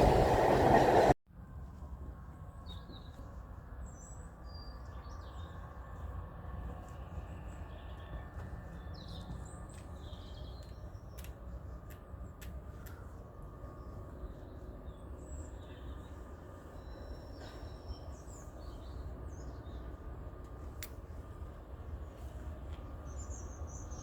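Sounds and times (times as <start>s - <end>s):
steady low rumble: 0.0s - 2.4s.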